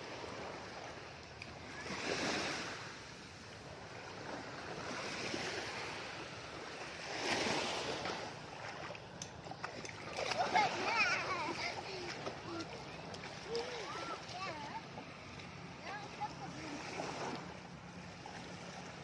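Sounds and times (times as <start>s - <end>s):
sea waves breaking at shore: 0.0s - 19.0s.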